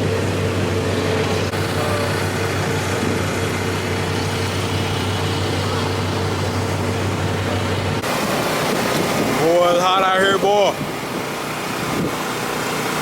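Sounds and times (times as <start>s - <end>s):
car engine running: 0.0s - 13.0s
wind noise on microphone: 2.6s - 9.7s, 10.7s - 12.6s.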